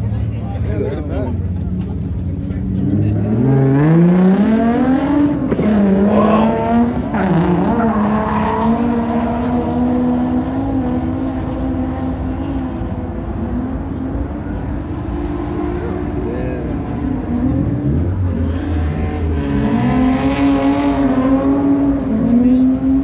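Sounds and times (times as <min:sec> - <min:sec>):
car engine revving: 0:02.6 - 0:23.0.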